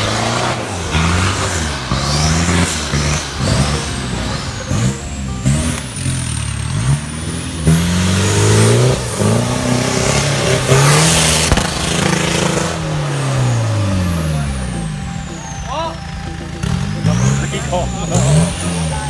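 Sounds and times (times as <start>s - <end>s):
engine revving hard: 0.0s - 19.0s.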